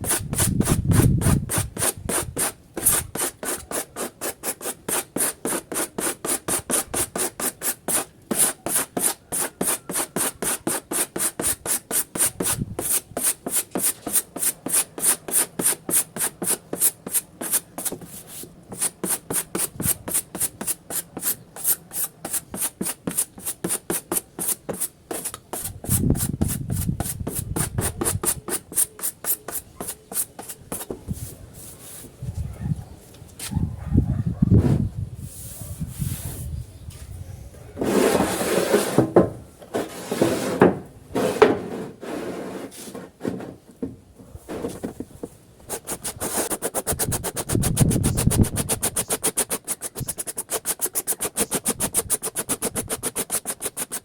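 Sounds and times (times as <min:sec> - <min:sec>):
hand rubbing plastic panel: 0:44.5 - 0:54.0.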